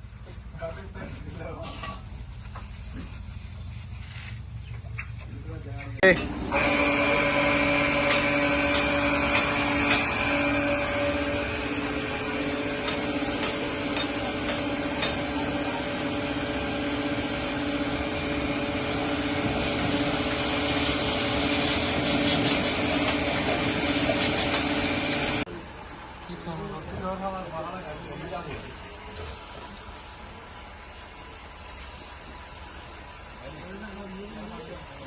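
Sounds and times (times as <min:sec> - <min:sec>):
power tool motor humming: 0:06.0 - 0:25.5.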